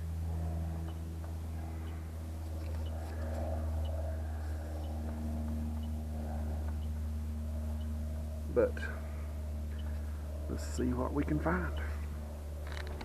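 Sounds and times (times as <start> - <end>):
heat pump unit humming: 0.0 - 13.0.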